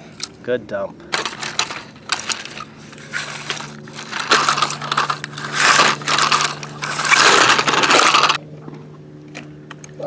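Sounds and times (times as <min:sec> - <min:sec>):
dirt and stones scraping and pouring: 0:01.1 - 0:08.4.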